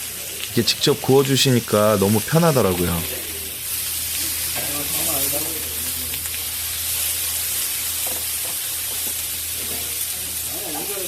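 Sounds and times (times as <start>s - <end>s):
meat sizzling on a hot griddle: 0.0s - 11.0s.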